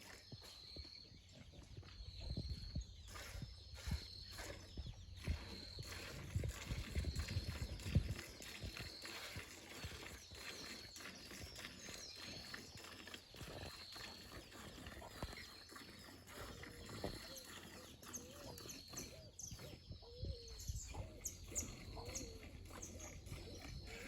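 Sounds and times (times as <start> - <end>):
farm animals calling: 7.8 - 24.0.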